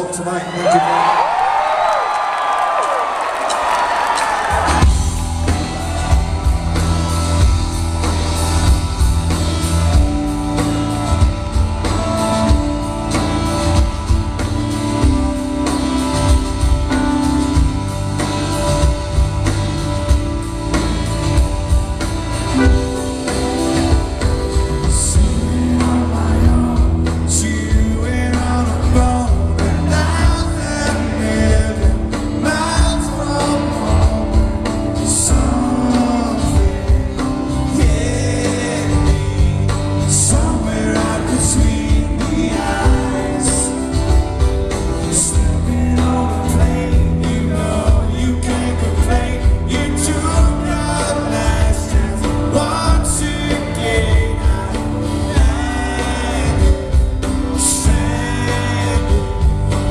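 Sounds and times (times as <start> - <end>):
live band playing: 3.4 - 59.9
man singing: 22.5 - 59.9.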